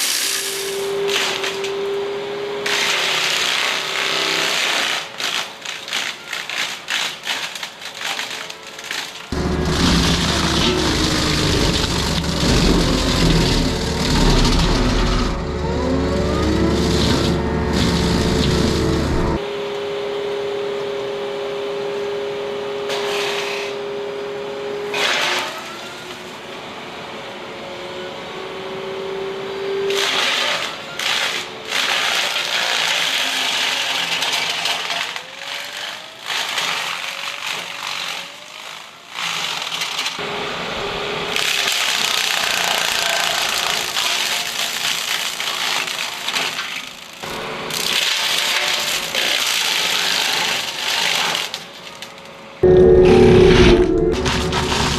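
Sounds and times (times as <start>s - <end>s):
crunching and splintering wood: 0.0s - 1.9s, 2.7s - 19.4s, 41.3s - 52.4s
mower rotor whine: 0.0s - 2.8s, 9.3s - 22.8s, 52.6s - 54.9s
excavator engine rumble: 9.4s - 19.4s.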